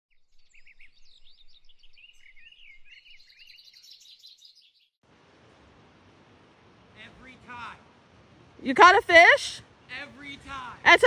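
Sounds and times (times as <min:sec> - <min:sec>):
songbirds chirping and trilling: 0:00.1 - 0:05.0
steady rushing hiss: 0:05.0 - 0:11.0.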